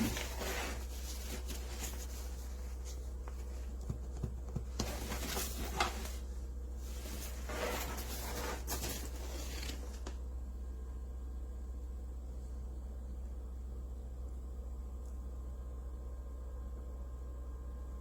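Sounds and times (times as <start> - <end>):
rustling and scraping of handling: 0.0 - 10.2
steady low hum: 0.0 - 18.0.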